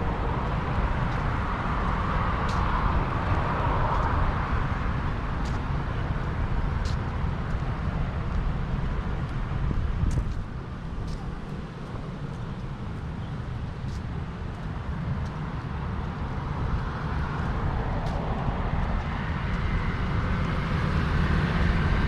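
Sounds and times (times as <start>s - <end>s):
road traffic rumble: 0.0s - 22.0s
vehicle passing: 16.4s - 22.0s.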